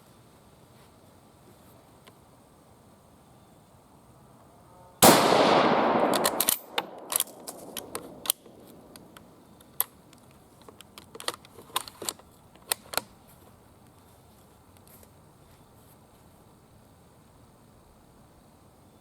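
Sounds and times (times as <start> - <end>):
rifle shot echoing: 5.0 - 9.0
rifle bolt metallic clicks: 5.0 - 9.9.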